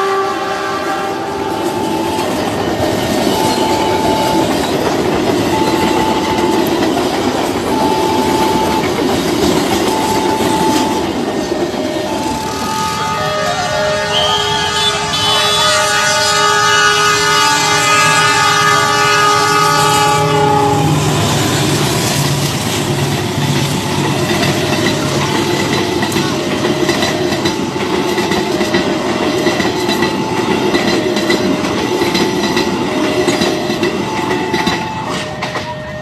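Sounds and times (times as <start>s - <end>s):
train horn: 0.0s - 7.0s, 7.6s - 9.1s, 9.8s - 22.9s, 30.1s - 36.0s
two-tone crossing warning signal: 0.0s - 36.0s
train wheels clattering on rails: 1.1s - 13.1s, 17.1s - 36.0s.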